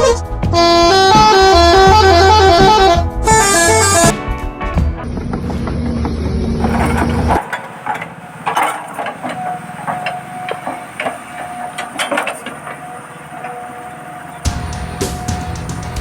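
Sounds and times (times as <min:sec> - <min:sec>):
wooden logs knocking: 0:05.2 - 0:13.8
small electric motors whining: 0:06.6 - 0:16.0
background music: 0:14.4 - 0:16.0.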